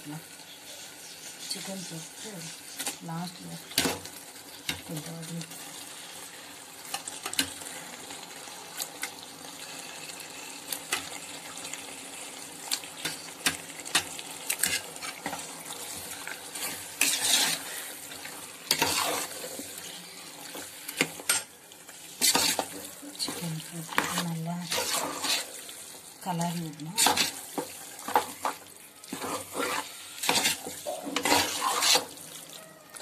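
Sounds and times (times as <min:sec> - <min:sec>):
chicken sizzling in a pot: 0:00.0 - 0:33.0
ladle scraping a metal pot: 0:16.2 - 0:18.1, 0:18.7 - 0:19.6, 0:22.2 - 0:22.8, 0:23.9 - 0:25.5, 0:29.1 - 0:32.2.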